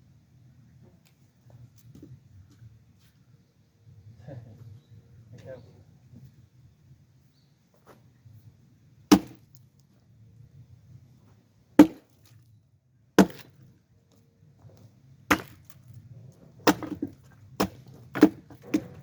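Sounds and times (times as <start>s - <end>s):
axe splitting firewood: 9.1s - 9.6s, 11.8s - 12.4s, 13.2s - 13.7s, 15.3s - 19.0s.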